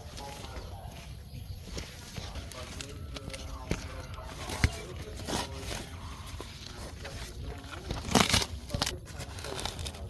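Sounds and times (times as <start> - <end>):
dry debris crunching and tearing: 2.3 - 10.0.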